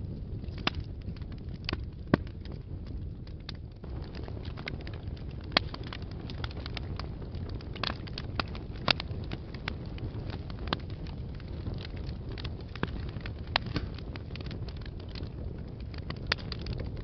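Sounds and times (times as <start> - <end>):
fire crackling and popping: 0.0 - 17.0
low rumble of fire: 0.0 - 17.0.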